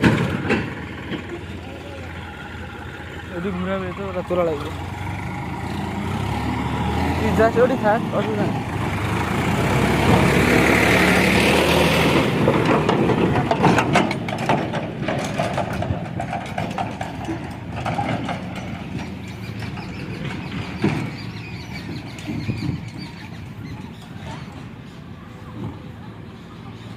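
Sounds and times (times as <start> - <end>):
knocks and rattles: 0.0 - 25.9
heavy diesel engine running: 0.0 - 26.9.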